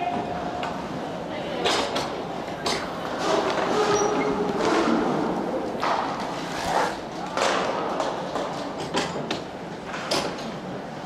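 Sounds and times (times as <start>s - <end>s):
skate wheels rumbling: 0.3s - 11.0s
sticks and puck hitting boards: 7.2s - 9.3s.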